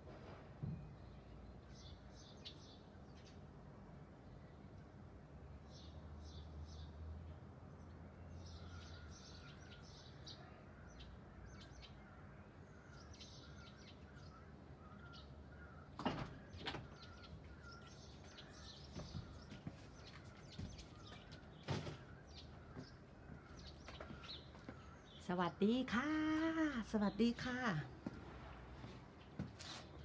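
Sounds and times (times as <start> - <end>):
songbirds chirping: 0.6 - 30.0.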